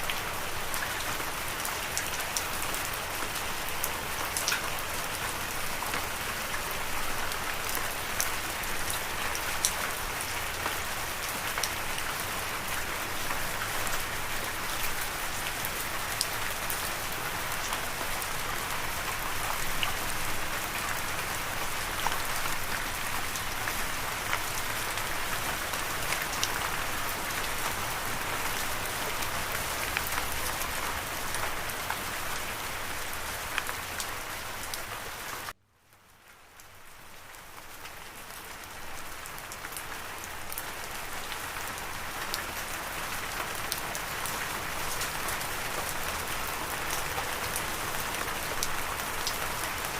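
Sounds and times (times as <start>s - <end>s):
steady rain hiss: 0.0s - 49.9s.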